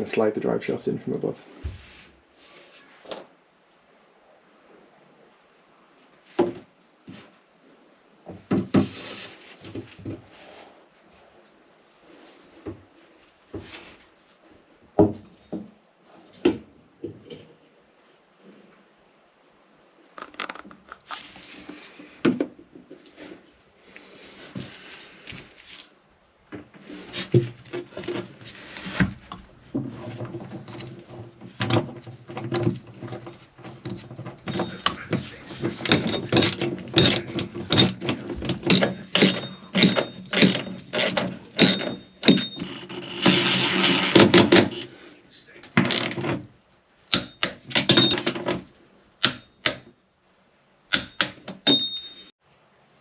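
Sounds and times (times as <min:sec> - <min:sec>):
knocks and scrapes: 0:01.3 - 0:03.3, 0:06.2 - 0:17.6, 0:20.1 - 0:46.6
sharp metal knocks and clunks: 0:29.8 - 0:42.7, 0:47.1 - 0:50.0, 0:50.9 - 0:52.3.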